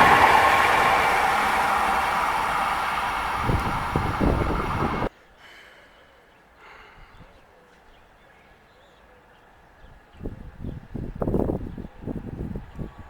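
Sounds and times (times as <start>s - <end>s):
train passing: 0.0s - 5.1s
faint background noise: 5.1s - 12.0s.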